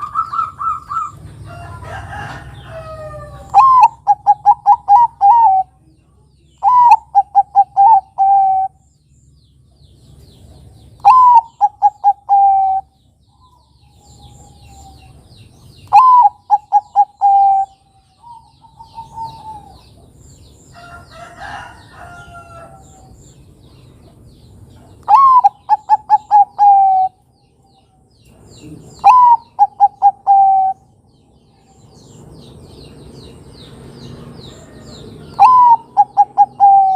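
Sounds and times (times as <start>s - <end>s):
dove cooing: 0.0s - 5.8s, 6.6s - 8.8s, 11.0s - 12.9s, 15.8s - 20.1s, 25.0s - 27.2s, 28.6s - 30.8s, 34.7s - 36.9s
rough bird call: 34.4s - 36.9s.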